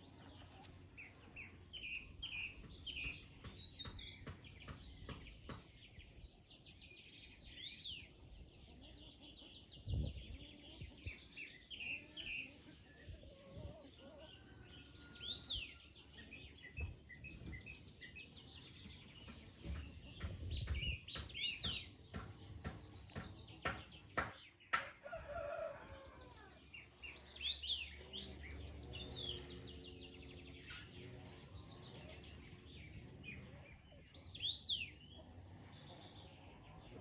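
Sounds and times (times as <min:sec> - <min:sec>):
small birds chirping: 0:00.0 - 0:37.0
rooster crowing: 0:14.2 - 0:16.0, 0:25.0 - 0:26.6.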